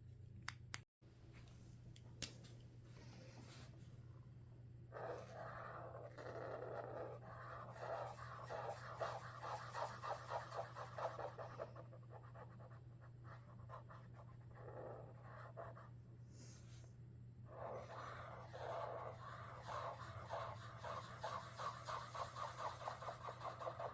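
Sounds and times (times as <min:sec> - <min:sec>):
marker scratching on paper: 0:04.9 - 0:16.8, 0:17.5 - 0:23.9.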